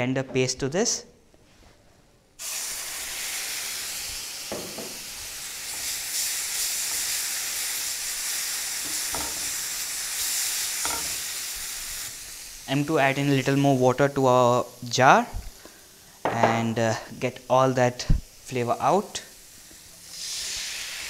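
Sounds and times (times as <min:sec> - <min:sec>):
paste sizzling in a frying pan: 0:02.4 - 0:16.3, 0:18.3 - 0:21.0.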